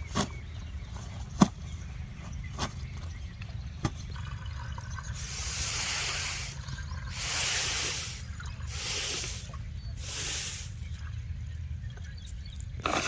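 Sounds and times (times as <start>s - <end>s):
water splashing in hissing surges: 5.2s - 10.8s.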